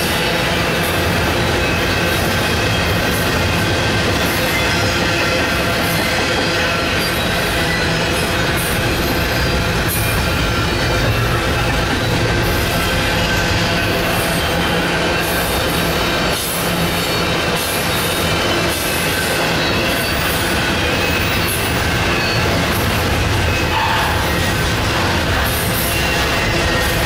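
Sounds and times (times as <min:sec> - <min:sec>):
freight train wheels rumbling: 0:00.0 - 0:27.0
high-pitched wheel squeal: 0:23.4 - 0:24.7.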